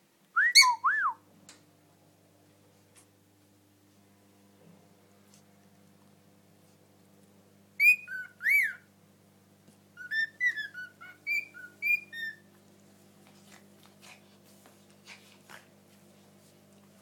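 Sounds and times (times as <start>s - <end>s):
parrot whistling a tune: 0.4s - 1.2s, 7.8s - 8.9s, 10.0s - 12.4s.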